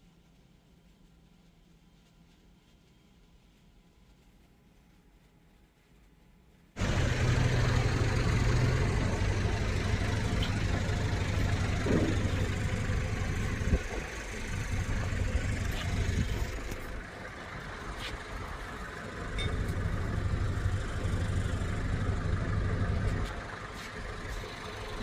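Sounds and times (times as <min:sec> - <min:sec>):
boat engines droning: 0:06.8 - 0:25.0.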